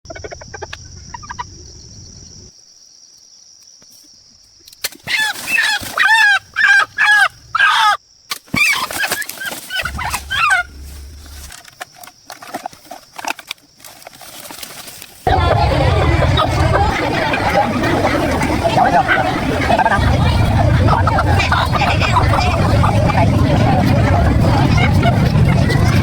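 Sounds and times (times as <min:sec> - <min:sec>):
chickens squawking: 0:05.0 - 0:08.0, 0:08.6 - 0:11.2, 0:15.3 - 0:26.0
steady high-pitched whine: 0:15.3 - 0:26.0.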